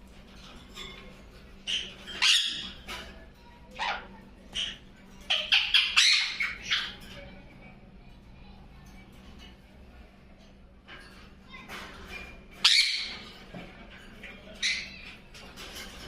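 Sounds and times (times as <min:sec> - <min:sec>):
parrot squawking: 0:01.6 - 0:03.0, 0:03.7 - 0:07.1, 0:12.6 - 0:13.3.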